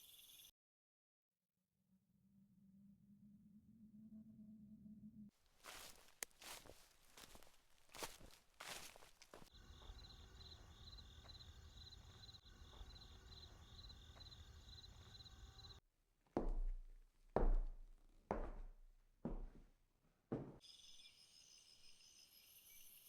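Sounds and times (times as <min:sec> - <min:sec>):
insect chorus chirping: 0:05.6 - 0:15.8
heavy footstep-like thuds: 0:16.4 - 0:19.7, 0:20.3 - 0:20.6.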